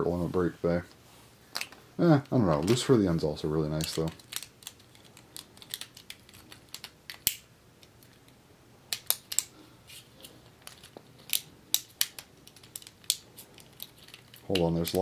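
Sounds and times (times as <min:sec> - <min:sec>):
plastic and metal parts clicking: 0:03.7 - 0:08.3, 0:10.6 - 0:15.0.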